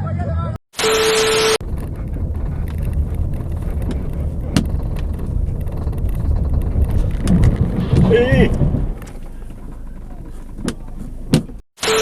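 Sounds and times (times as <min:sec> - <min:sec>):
held tone: 0:00.8 - 0:03.0, 0:11.8 - 0:12.0
low vehicle rumble: 0:01.6 - 0:11.6.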